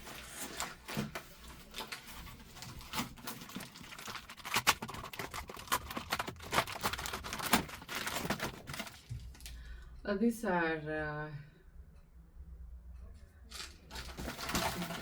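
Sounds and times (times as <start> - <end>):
packaging cracking: 0.0 - 9.6, 13.5 - 15.0
packaging crinkling and rustling: 0.0 - 9.6, 13.5 - 15.0.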